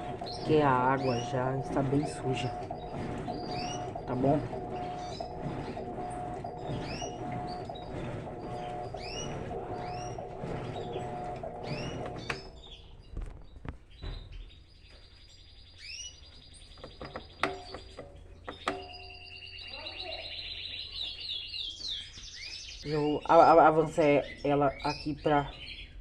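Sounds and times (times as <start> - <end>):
washing machine humming: 0.0 - 13.4, 16.8 - 20.2
small bird chirping: 0.1 - 23.4.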